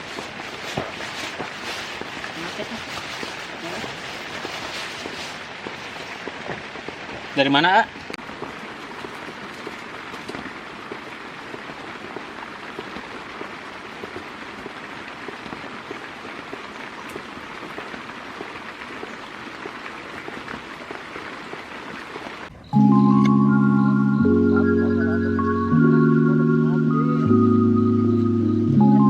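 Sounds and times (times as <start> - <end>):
steady rain falling: 0.0 - 29.0
music: 22.6 - 29.0.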